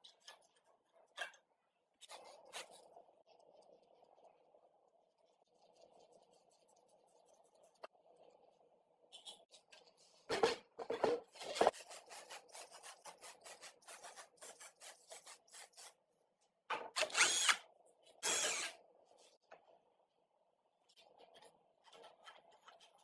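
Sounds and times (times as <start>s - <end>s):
small power tool whine: 17.0s - 17.6s, 18.2s - 18.8s.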